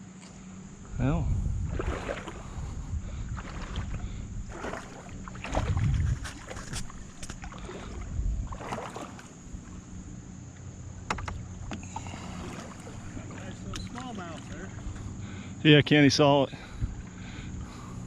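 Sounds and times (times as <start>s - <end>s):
paddle splashing in water: 1.7s - 2.6s, 3.3s - 9.8s, 10.5s - 15.1s
sharp knocks: 11.1s - 11.4s.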